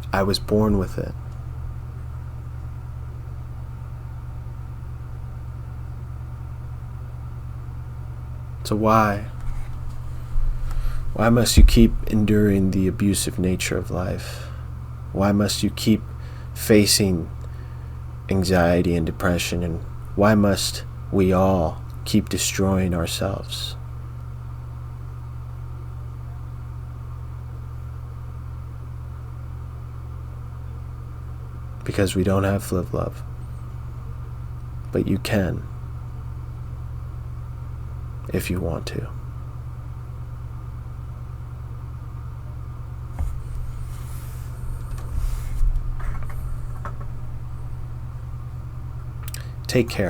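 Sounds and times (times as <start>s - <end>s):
steady low hum: 0.0s - 50.0s
rustling: 9.3s - 12.7s, 43.1s - 49.7s
soft knocks: 9.4s - 12.8s, 43.2s - 49.3s.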